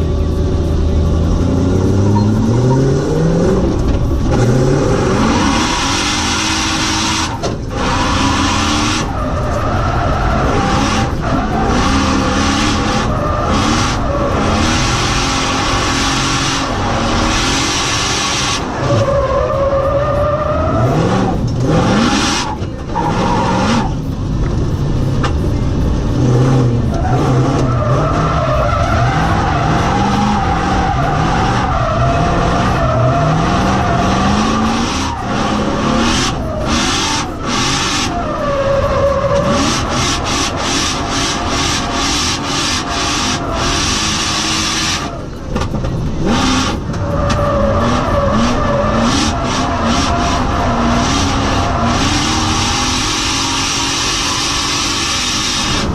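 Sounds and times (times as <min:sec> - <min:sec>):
car engine revving: 0:00.0 - 0:55.9
tyres squealing: 0:26.8 - 0:45.4, 0:46.2 - 0:55.9.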